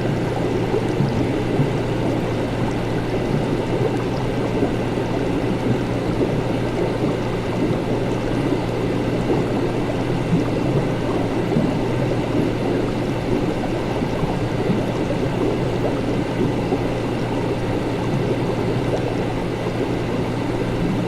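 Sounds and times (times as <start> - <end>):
liquid bubbling and gurgling: 0.0 - 21.0.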